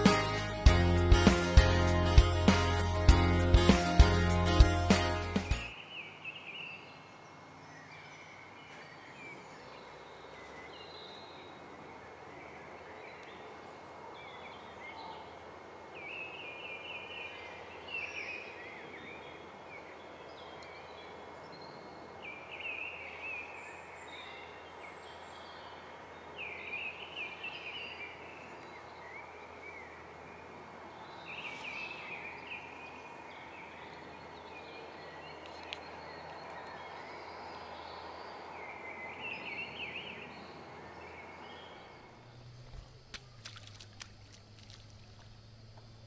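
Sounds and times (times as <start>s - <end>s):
small birds chirping and singing: 0.0s - 15.4s, 16.0s - 44.0s
outdoor background hiss: 0.0s - 46.0s.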